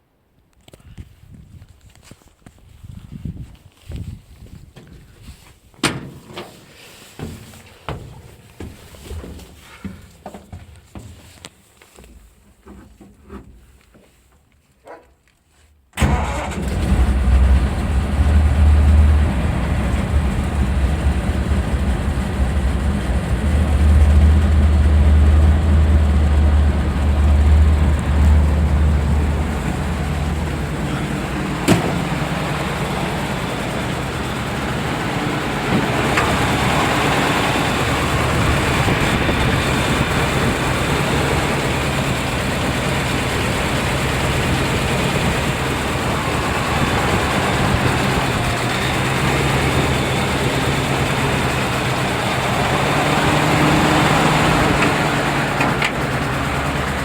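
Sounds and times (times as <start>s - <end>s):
truck engine starting and rumbling: 16.0s - 57.0s.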